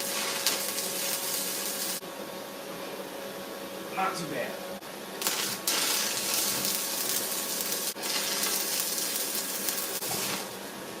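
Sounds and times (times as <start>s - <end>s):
welding arc crackling: 0.0s - 2.0s, 5.2s - 10.7s.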